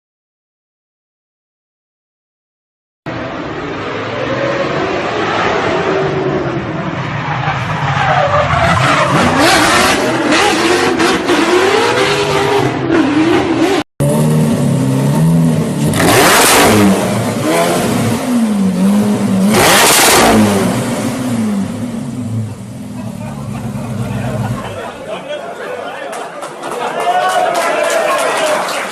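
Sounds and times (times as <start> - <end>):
loud exhaust blasts: 3.1 - 25.2
car engine revving hard: 8.6 - 24.9.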